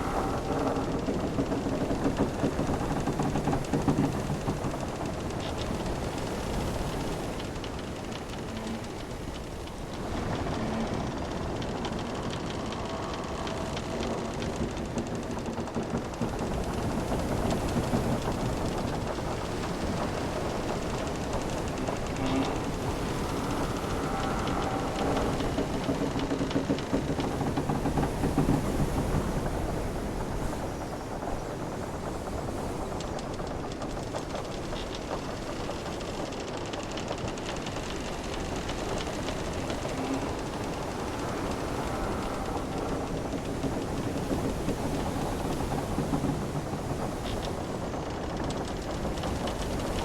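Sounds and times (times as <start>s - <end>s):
sea rumbling: 0.0s - 50.0s
small clicks and ticks: 0.0s - 50.0s
wooden ship timbers creaking: 0.0s - 50.0s
ocean waves rushing: 37.8s - 50.0s.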